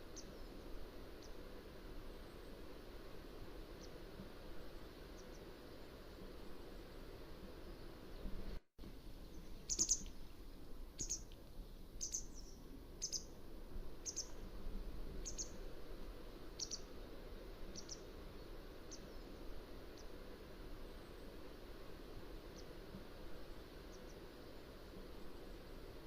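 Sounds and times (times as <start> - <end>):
low background noise: 0.0 - 26.0.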